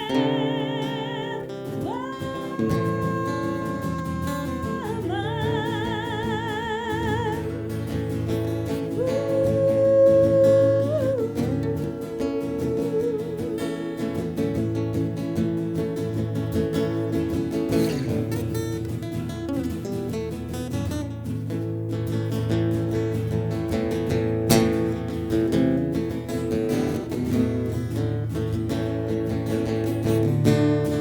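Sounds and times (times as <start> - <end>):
acoustic guitar accompaniment: 0.0 - 31.0
folk melody of long held notes: 8.7 - 15.1.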